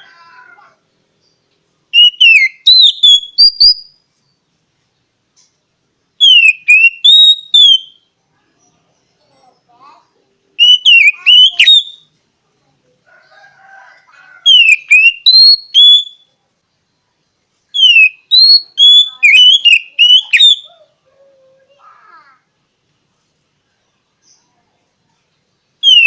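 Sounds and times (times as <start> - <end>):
bird singing whistled phrases: 1.9 - 4.0, 6.2 - 8.1, 10.6 - 12.1, 14.5 - 16.4, 17.8 - 20.9, 25.8 - 26.0.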